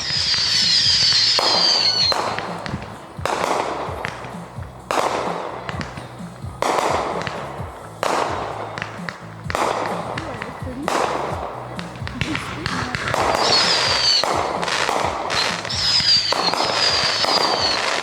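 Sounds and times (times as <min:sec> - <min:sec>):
firework whistle falling in pitch: 0:00.0 - 0:02.4, 0:15.4 - 0:18.0
firework bangs: 0:00.0 - 0:18.0.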